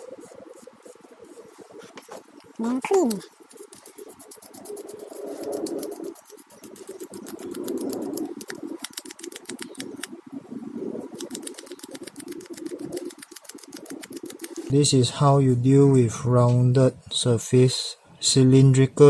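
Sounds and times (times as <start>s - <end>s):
sandpaper rubbing on plastic: 0.0s - 10.1s, 11.0s - 14.7s.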